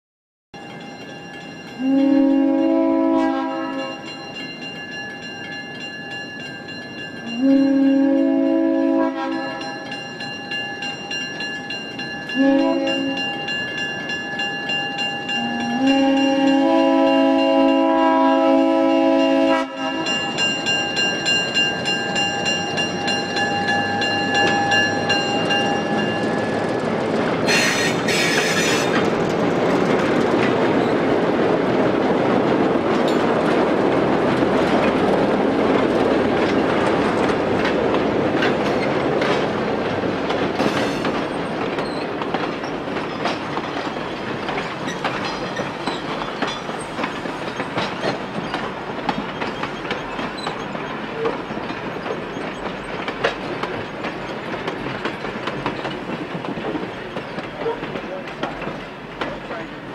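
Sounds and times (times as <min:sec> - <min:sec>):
train rumbling on rails: 0:00.6 - 0:59.9
train whistle chord: 0:01.8 - 0:04.2, 0:07.2 - 0:09.9, 0:12.3 - 0:13.5, 0:15.3 - 0:20.2
wheels clicking over rail joints: 0:20.1 - 0:59.9.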